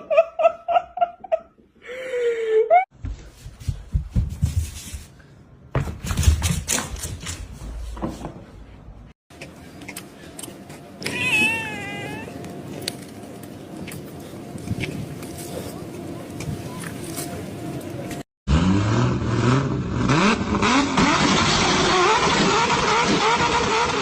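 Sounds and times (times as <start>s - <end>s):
cat meowing: 11.0s - 12.3s.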